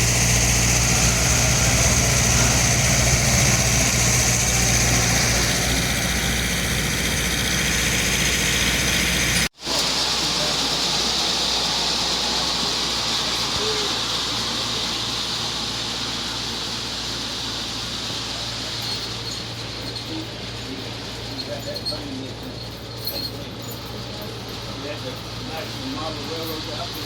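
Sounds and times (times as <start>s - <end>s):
train engine drone and hiss: 0.0s - 27.0s.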